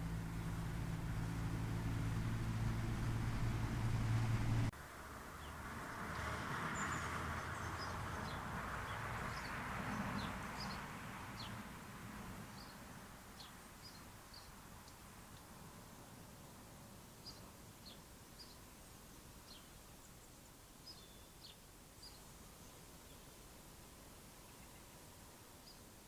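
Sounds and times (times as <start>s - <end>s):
steady low hum: 0.0s - 4.7s
small birds chirping: 6.8s - 11.6s, 12.5s - 16.2s, 17.2s - 23.4s
faint background hiss: 10.3s - 26.0s.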